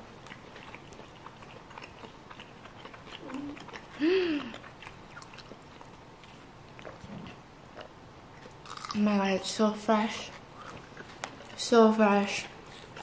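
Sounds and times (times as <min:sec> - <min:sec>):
person chewing food: 0:00.0 - 0:09.0, 0:10.2 - 0:11.6, 0:12.6 - 0:13.0
hummed mm of enjoyment: 0:03.2 - 0:04.7.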